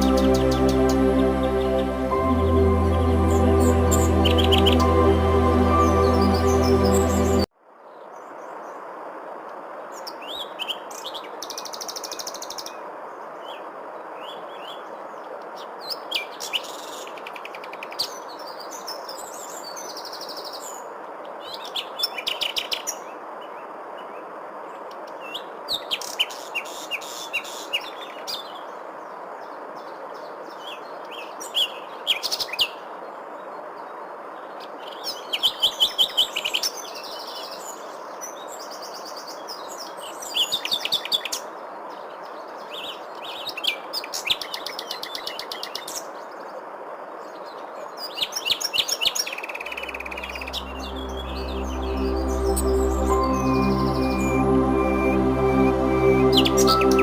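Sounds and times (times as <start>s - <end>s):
songbirds chirping and trilling: 0.0s - 7.5s.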